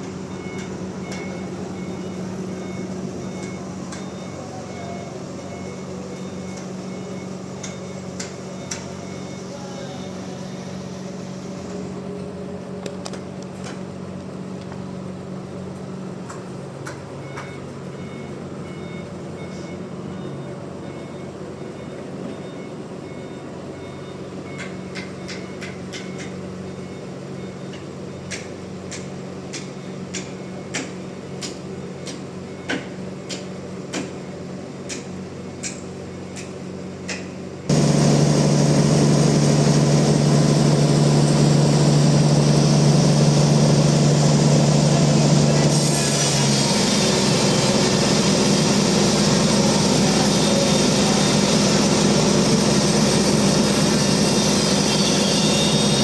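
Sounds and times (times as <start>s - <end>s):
sawmill machinery humming: 0.0s - 12.7s, 37.7s - 56.0s
loud engine: 0.0s - 16.4s, 37.6s - 56.0s.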